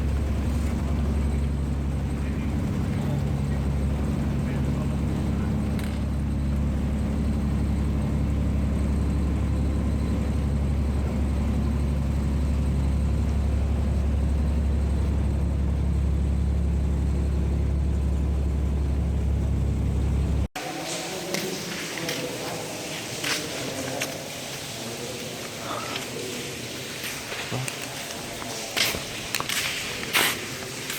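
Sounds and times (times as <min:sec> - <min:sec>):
vehicle engine drone: 0:00.0 - 0:20.5.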